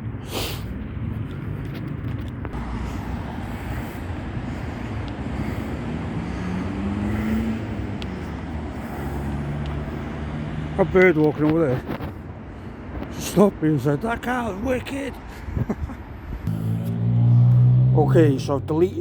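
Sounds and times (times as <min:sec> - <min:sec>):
person speaking: 0:13.2 - 0:15.3, 0:17.9 - 0:19.0.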